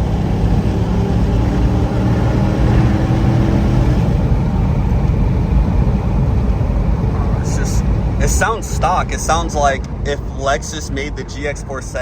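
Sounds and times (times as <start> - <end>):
engine exhaust low note: 0.0 - 12.0.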